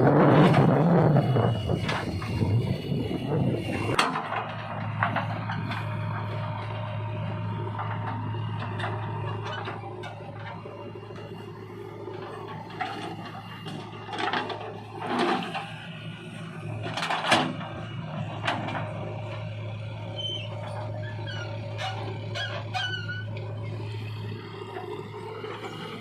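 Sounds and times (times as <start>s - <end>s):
engine knocks: 0.0s - 11.4s
diesel engine running: 0.0s - 26.0s.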